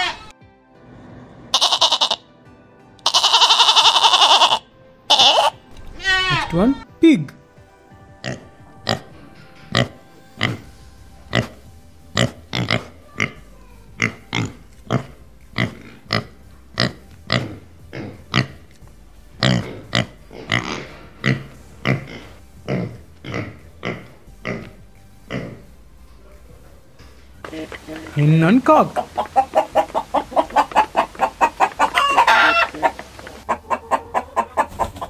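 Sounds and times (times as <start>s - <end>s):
pigs grunting: 1.0s - 2.2s, 8.2s - 18.7s, 19.4s - 25.7s, 27.4s - 35.0s.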